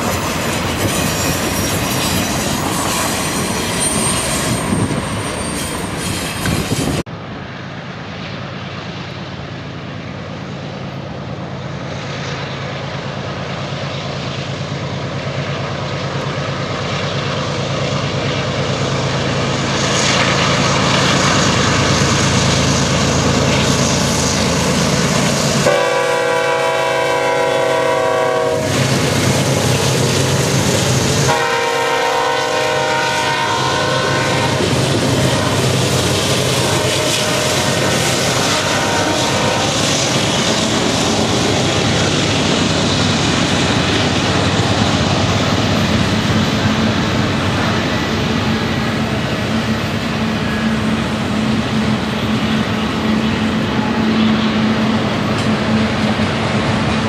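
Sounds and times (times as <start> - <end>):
train wheels clattering on rails: 0.0 - 7.1, 34.2 - 57.0
diesel locomotive engine drone: 0.0 - 57.0
locomotive air horn blast: 25.6 - 28.9, 31.2 - 34.7, 36.6 - 39.8.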